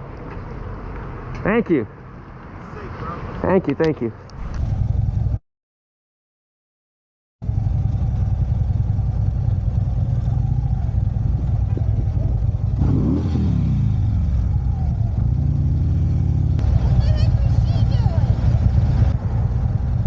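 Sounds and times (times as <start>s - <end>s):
motorcycle engine running: 4.4s - 5.4s, 7.4s - 12.8s.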